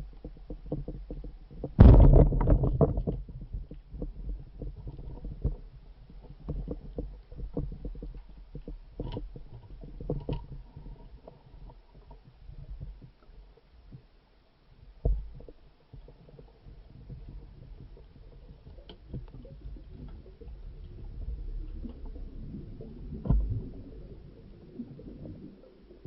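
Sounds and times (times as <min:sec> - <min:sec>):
muffled underwater rumbling: 0:00.0 - 0:26.0
heavy thump: 0:01.8 - 0:03.0.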